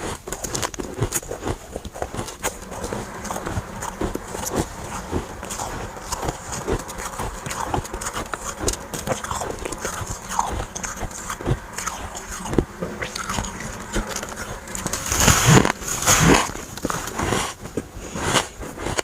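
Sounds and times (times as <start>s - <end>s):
chewing crunchy frost: 0.0s - 19.0s.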